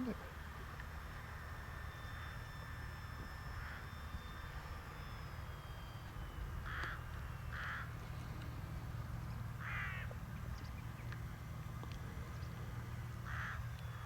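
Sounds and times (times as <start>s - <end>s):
bird cawing: 3.6s - 4.0s, 6.6s - 8.0s, 9.5s - 10.7s, 13.2s - 13.7s.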